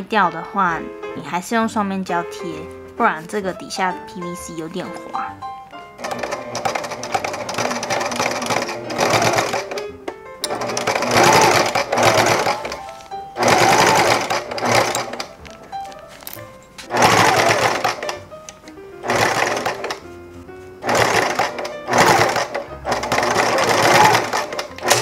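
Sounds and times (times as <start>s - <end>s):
sewing machine stitching: 6.0s - 15.4s, 16.8s - 18.2s, 19.0s - 20.0s, 20.8s - 25.0s.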